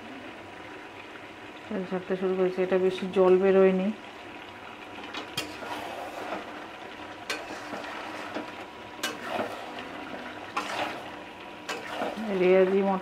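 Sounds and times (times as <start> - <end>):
curry sizzling in a pan: 0.0 - 13.0
spatula knocking and scraping pan: 7.2 - 9.8, 10.5 - 12.3.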